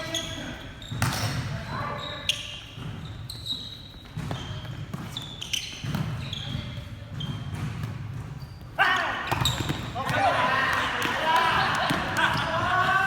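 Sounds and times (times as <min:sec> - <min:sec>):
sneaker squeaks on court floor: 0:00.0 - 0:11.2
volleyball struck and bouncing: 0:09.3 - 0:12.9.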